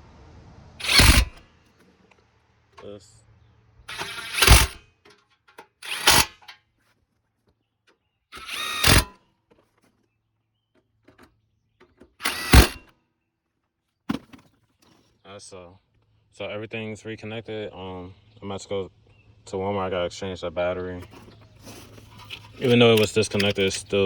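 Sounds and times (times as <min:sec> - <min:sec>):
power driver tightening bolts: 0:00.8 - 0:01.4, 0:03.9 - 0:06.6, 0:08.4 - 0:09.2, 0:11.1 - 0:12.9, 0:21.0 - 0:24.0.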